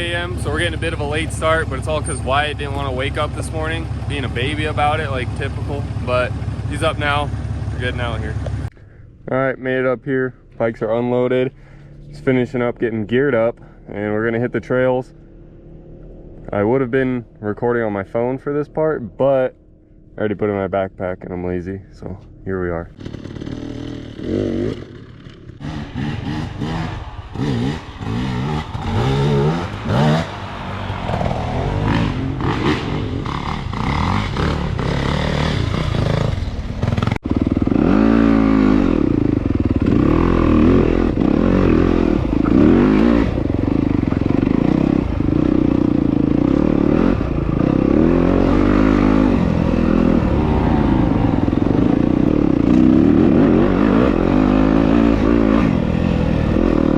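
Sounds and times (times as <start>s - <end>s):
dirt bike engines revving: 0.0s - 8.7s, 22.9s - 56.9s.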